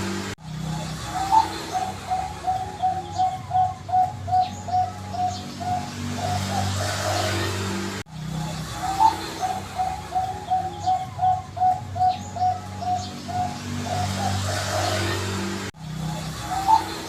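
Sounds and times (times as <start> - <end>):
dove cooing: 1.0 - 7.5, 8.7 - 15.2, 16.4 - 17.0.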